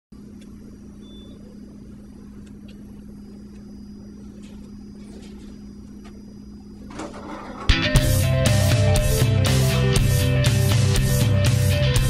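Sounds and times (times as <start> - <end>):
low hum of room tone: 0.2 - 9.4.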